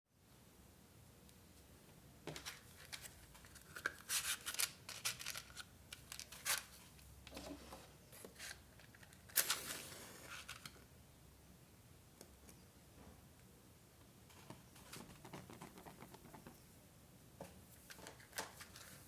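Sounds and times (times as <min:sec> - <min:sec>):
paper being handled: 0:02.5 - 0:06.8.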